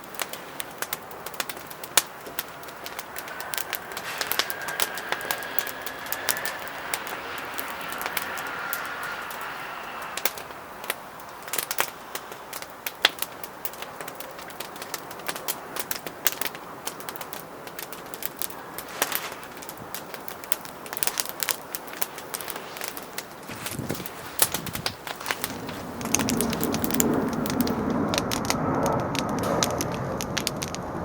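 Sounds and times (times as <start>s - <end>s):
fire hissing: 0.0s - 31.0s
firewood crackling and popping: 0.0s - 31.0s.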